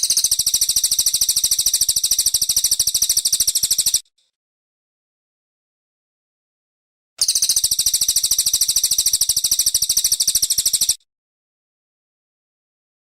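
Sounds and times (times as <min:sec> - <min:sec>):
bird trilling high-pitched: 0:00.0 - 0:04.0, 0:07.2 - 0:11.0.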